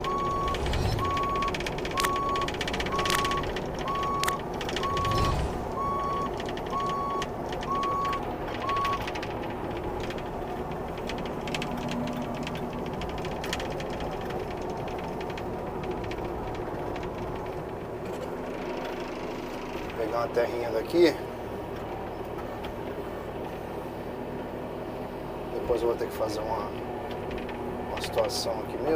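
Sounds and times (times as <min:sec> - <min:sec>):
travel alarm beeping: 0:00.0 - 0:09.0
excavator diesel engine running: 0:00.0 - 0:28.9.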